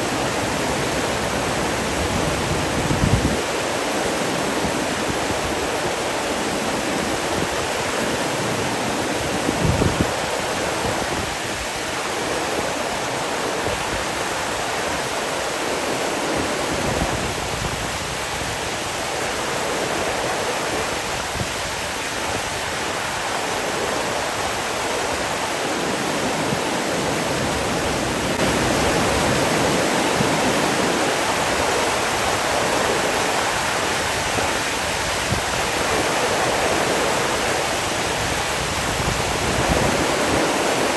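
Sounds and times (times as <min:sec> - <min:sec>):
water rushing: 0:00.0 - 0:40.9.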